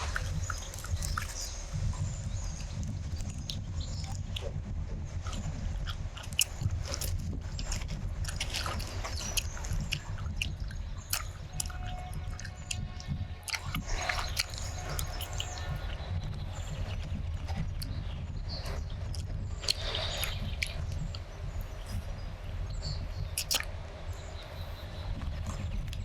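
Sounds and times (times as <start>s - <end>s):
mouth chewing with wet clicks: 0.0s - 4.6s, 5.2s - 26.0s
low steady hum: 0.0s - 26.0s.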